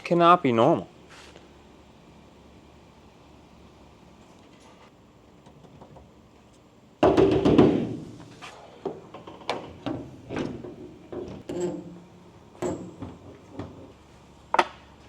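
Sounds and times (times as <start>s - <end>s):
sharp knocks: 7.0s - 7.9s.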